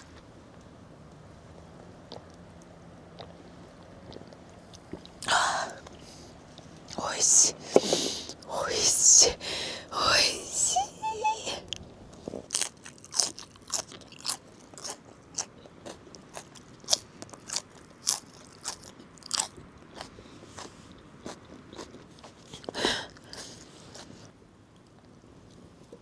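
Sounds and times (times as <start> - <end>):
crisp crunching of cabbage: 12.1 - 24.3.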